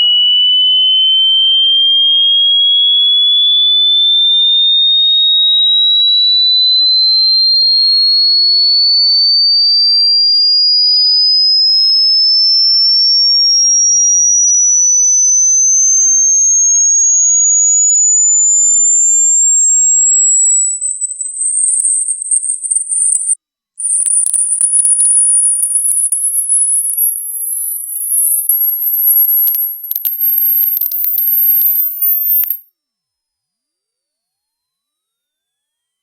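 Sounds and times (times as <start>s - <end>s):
high-pitched rising electronic tone: 19.9s - 32.6s.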